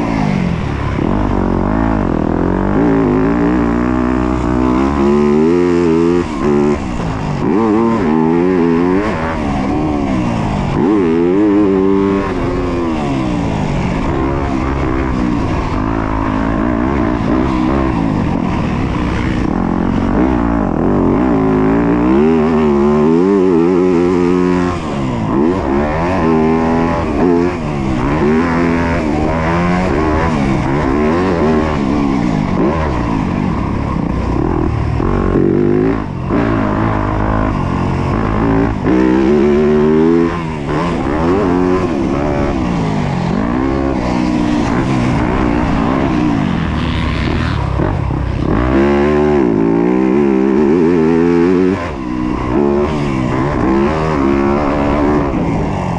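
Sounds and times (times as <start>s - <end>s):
motocross bike engine revving: 0.0s - 55.9s.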